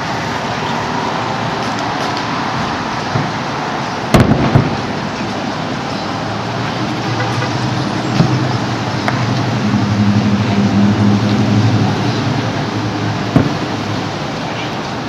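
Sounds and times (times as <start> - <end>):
low engine hum: 0.0 - 15.0
traffic noise: 0.0 - 15.0
distant fireworks bangs: 4.1 - 5.1, 13.3 - 13.9.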